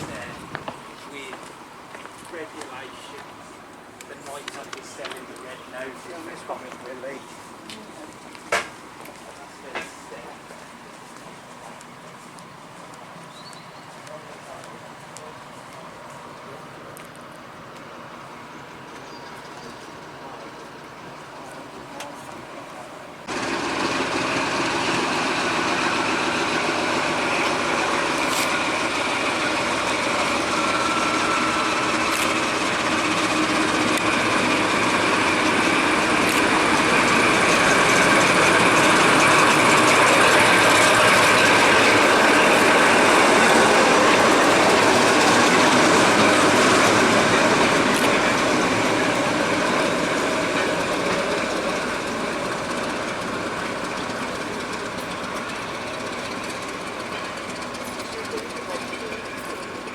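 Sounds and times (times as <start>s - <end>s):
train wheels rumbling on rail: 0.0s - 59.9s
sharp clicks: 32.1s - 32.4s.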